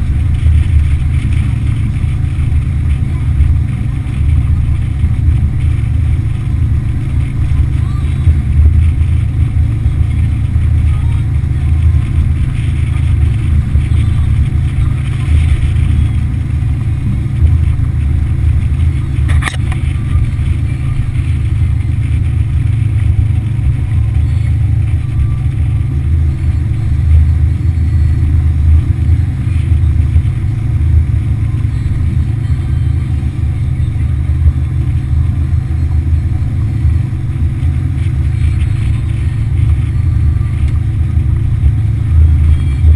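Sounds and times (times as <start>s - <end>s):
outboard motor running: 0.0s - 42.9s.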